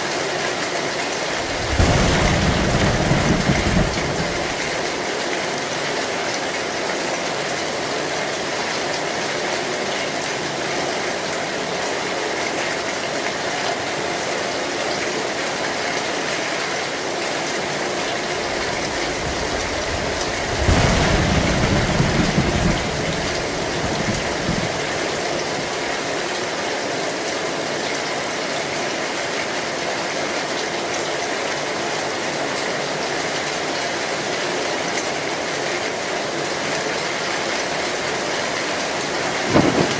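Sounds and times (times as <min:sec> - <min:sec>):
heavy rain on a metal roof: 0:00.0 - 0:39.9
low thunder rumble: 0:01.3 - 0:05.0, 0:18.1 - 0:25.8, 0:39.2 - 0:39.9.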